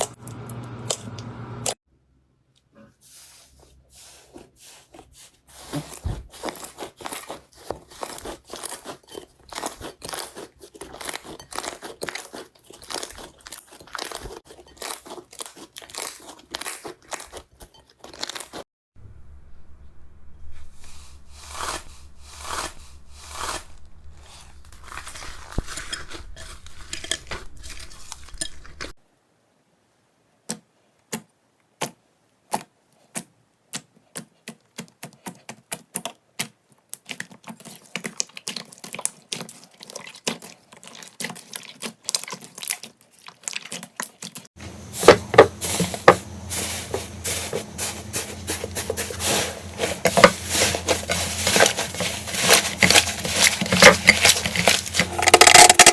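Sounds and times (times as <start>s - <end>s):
slime crunching and crackling: 5.1s - 18.6s, 21.5s - 29.0s, 33.8s - 44.6s, 45.2s - 55.9s
slime crackling: 6.3s - 18.6s, 37.0s - 44.4s, 47.1s - 55.9s.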